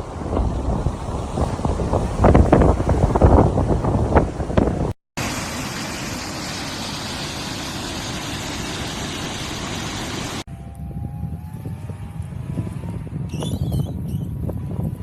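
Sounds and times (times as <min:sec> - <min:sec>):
storm wind rushing: 0:00.0 - 0:05.0.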